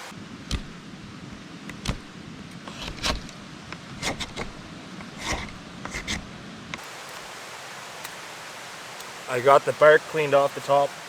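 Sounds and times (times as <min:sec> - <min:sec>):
knife scraping bark: 0:02.6 - 0:03.4, 0:04.0 - 0:06.3.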